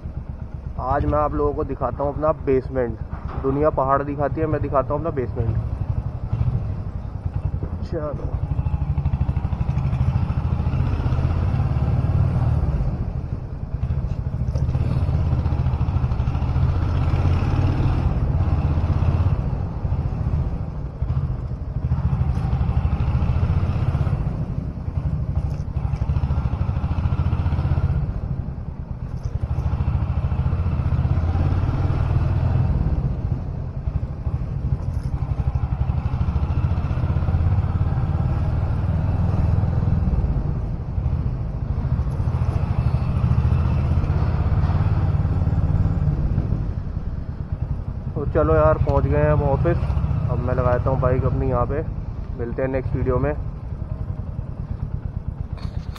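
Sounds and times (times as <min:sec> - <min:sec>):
motorcycle engine thumping: 0:03.0 - 0:04.1, 0:54.8 - 0:55.9.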